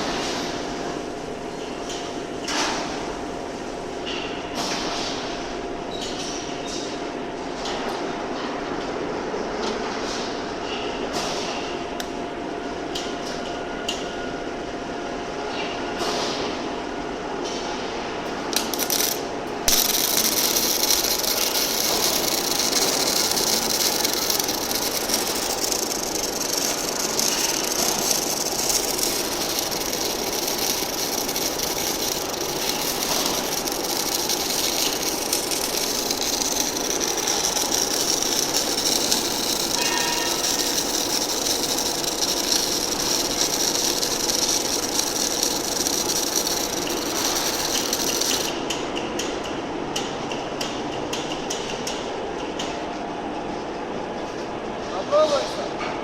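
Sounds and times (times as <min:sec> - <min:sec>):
welding arc crackling and hissing: 0:18.3 - 0:48.6.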